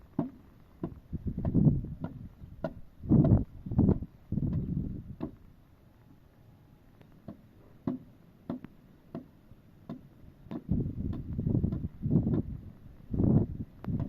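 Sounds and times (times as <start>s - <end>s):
light sharp knocks and ticks: 7.0s - 12.5s.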